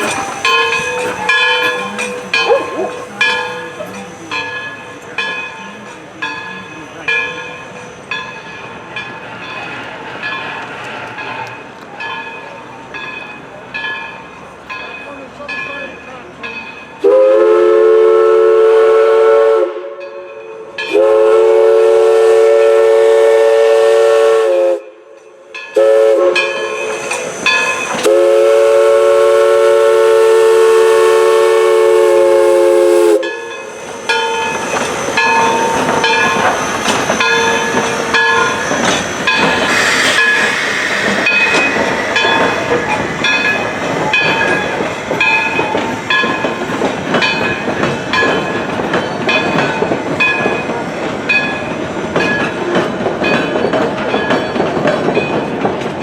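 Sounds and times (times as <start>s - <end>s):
train wheels clattering on rail: 0.0s - 17.4s, 25.1s - 56.0s
steam whistle blasts: 17.0s - 20.0s, 20.9s - 25.0s, 25.8s - 43.0s.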